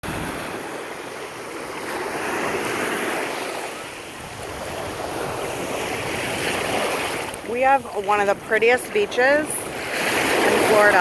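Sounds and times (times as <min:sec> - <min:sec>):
surf washing onto beach: 0:00.0 - 0:11.0.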